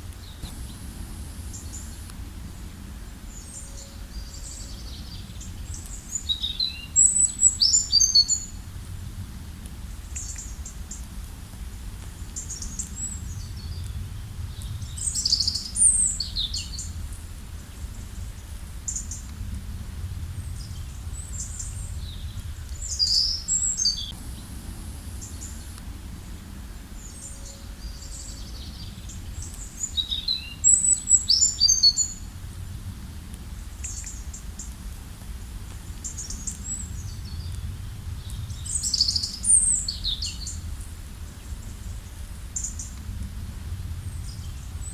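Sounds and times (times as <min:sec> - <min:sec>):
low steady rush: 0:00.0 - 0:31.3, 0:32.0 - 0:44.9
songbirds twittering: 0:00.1 - 0:08.6, 0:12.2 - 0:19.3, 0:20.3 - 0:32.3, 0:36.0 - 0:43.0.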